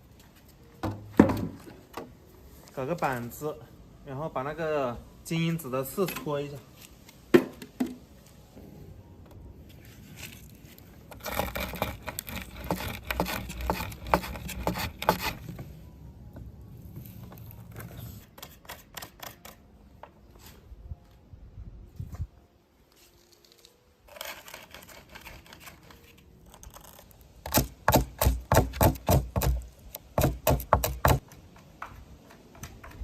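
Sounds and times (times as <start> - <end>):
rose hips scraping and clicking: 9.7 - 15.7, 23.0 - 27.7.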